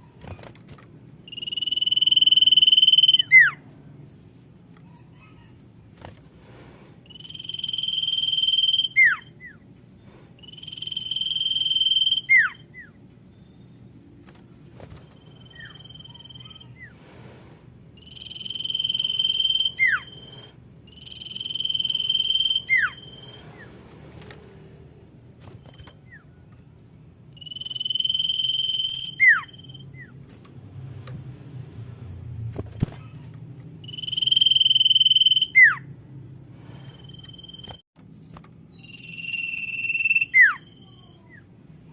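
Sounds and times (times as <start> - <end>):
faint low hum: 0.0 - 41.9
bird whistling calls: 1.3 - 3.6, 7.1 - 9.6, 10.4 - 13.8, 15.1 - 16.9, 18.0 - 23.7, 27.3 - 30.2, 33.8 - 35.9, 38.7 - 41.5.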